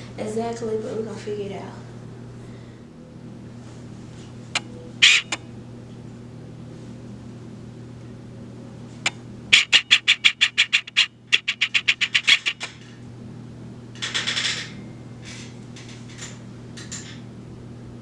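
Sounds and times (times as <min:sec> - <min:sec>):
steady low hum: 0:00.0 - 0:18.0
rapid mechanical clicks: 0:09.0 - 0:12.8.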